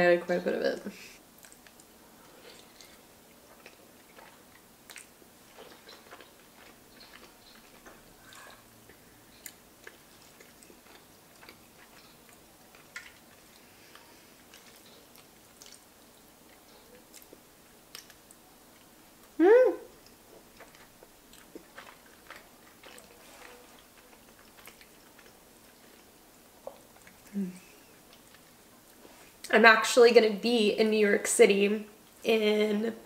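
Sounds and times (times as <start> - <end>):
wet mouth clicks chewing: 1.4 - 8.6, 9.3 - 19.4.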